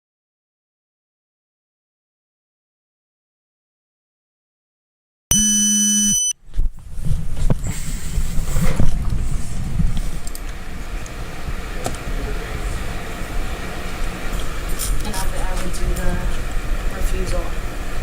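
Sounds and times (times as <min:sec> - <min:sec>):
buzzy electronic beep: 0:05.3 - 0:06.3.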